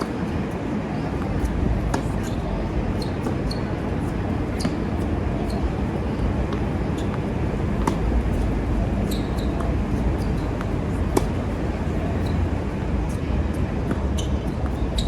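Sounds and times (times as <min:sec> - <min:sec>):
tennis balls struck: 0:07.7 - 0:12.6.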